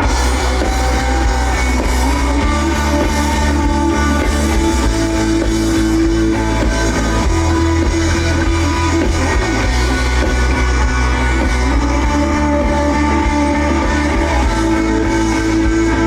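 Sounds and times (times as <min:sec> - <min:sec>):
live band playing pop-rock: 0:00.0 - 0:16.0.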